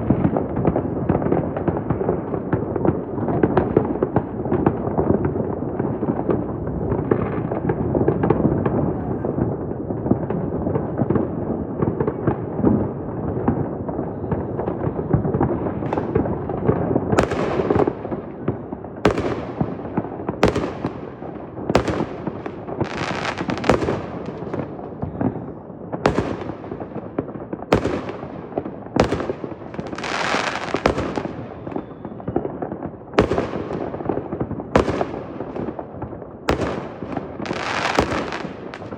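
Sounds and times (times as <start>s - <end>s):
fireworks banging: 11.9s - 38.9s.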